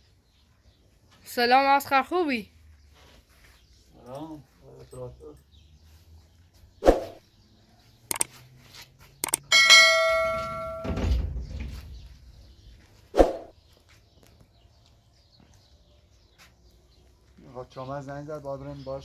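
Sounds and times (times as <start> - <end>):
sharp knocks: 9.2 - 11.8
ringing metal clang: 9.4 - 11.8
low thump: 10.2 - 12.5.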